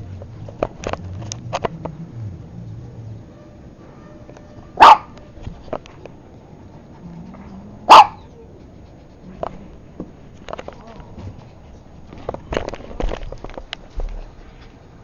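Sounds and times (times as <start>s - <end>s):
dog barking: 4.8s - 5.2s, 7.9s - 8.3s.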